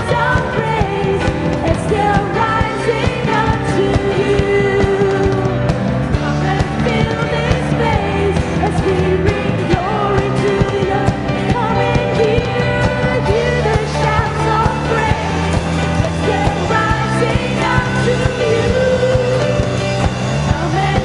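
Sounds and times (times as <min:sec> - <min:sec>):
drums keeping a beat: 0:00.0 - 0:21.0
live band playing: 0:00.0 - 0:21.0.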